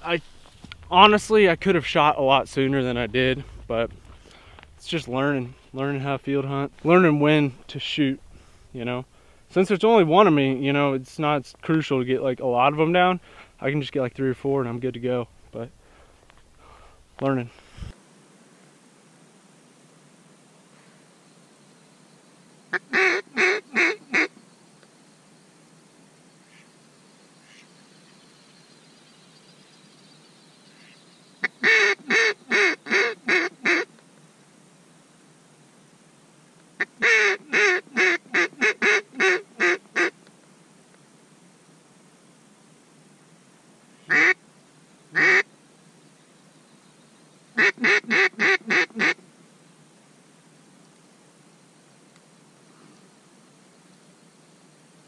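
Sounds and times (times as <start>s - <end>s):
duck call quacking: 22.7s - 24.3s, 31.5s - 33.9s, 36.8s - 40.2s, 44.1s - 44.4s, 45.2s - 45.4s, 47.6s - 49.2s
duck quacking: 44.1s - 44.4s, 45.2s - 45.4s, 47.6s - 49.2s.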